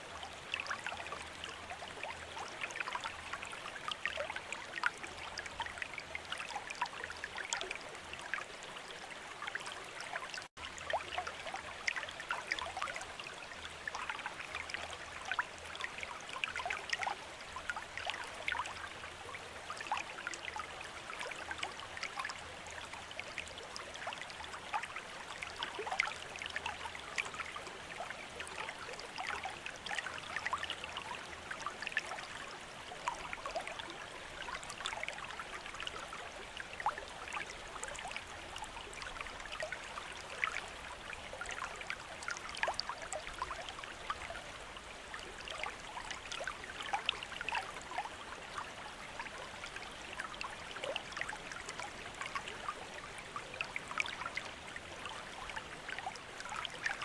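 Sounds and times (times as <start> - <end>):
water splashes and drips: 0.0 - 57.0.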